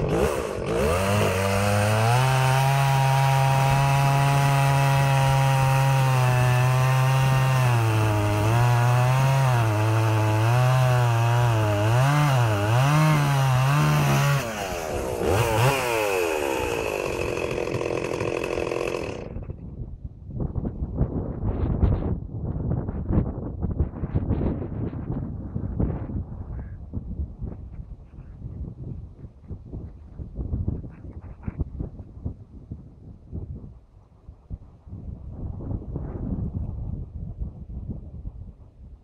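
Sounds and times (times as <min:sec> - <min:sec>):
chainsaw cutting wood: 0:00.0 - 0:19.6.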